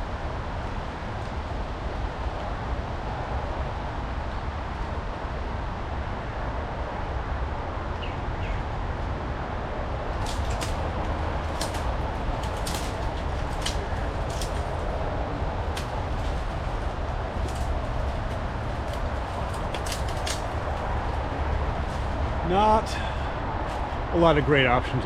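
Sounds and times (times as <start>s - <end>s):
steady rushing noise: 0.0s - 25.0s
footsteps through wet brush: 10.1s - 22.4s
twigs snapping and crackling: 10.1s - 22.4s.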